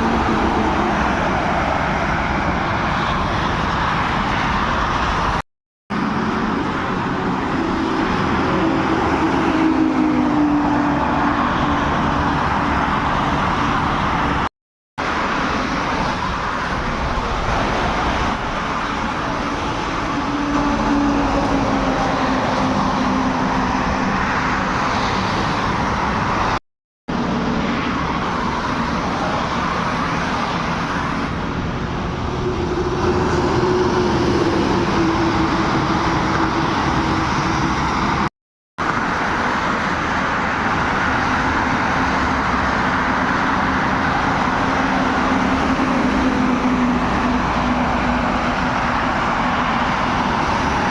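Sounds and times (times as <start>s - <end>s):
heavy trucks driving past: 15.2s - 38.3s, 38.9s - 50.9s.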